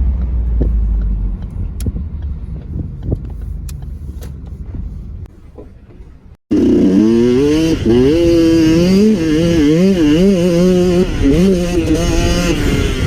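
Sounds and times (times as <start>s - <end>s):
two-stroke engine revving hard: 6.5s - 13.0s.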